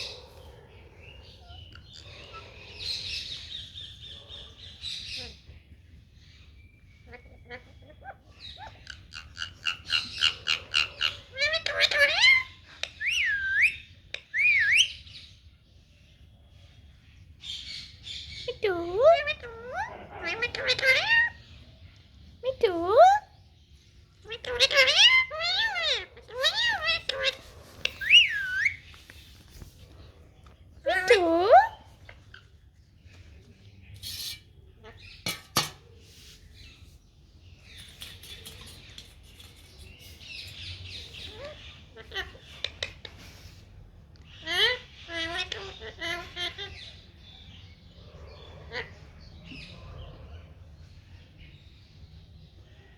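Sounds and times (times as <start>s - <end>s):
parrot rustling: 26.4s - 30.3s.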